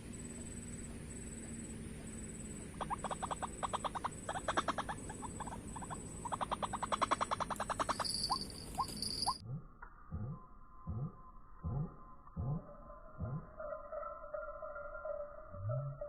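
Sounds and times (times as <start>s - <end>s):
waterhen rapid call notes: 1.4s - 9.4s.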